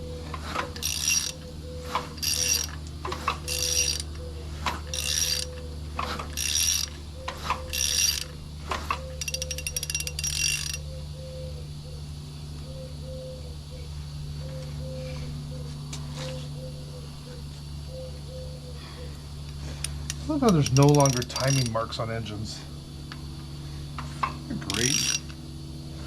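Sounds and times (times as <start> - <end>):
hand ratchet clicking: 0.5 - 10.8, 19.8 - 21.8, 24.7 - 25.4.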